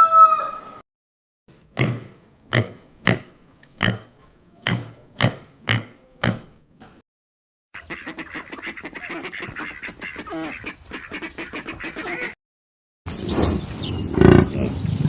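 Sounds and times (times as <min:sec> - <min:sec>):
flock of ducks quacking: 0:07.8 - 0:12.4.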